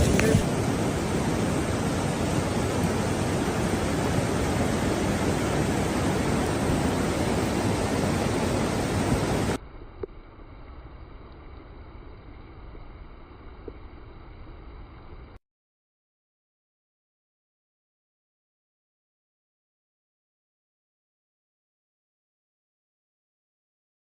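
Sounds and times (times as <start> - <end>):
floodwater rushing: 0.0 - 9.6.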